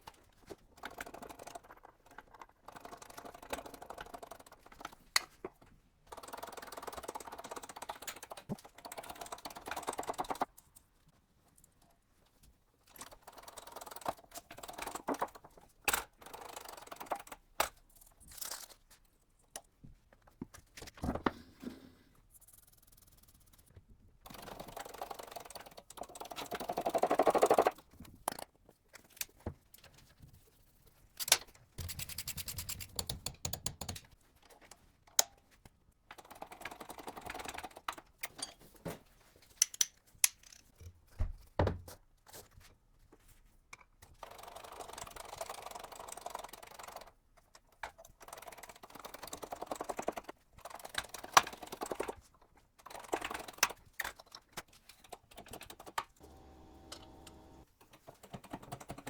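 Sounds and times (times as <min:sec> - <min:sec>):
metal parts clicking and knocking: 0:00.1 - 0:05.4, 0:31.2 - 0:34.2, 0:39.5 - 0:40.8.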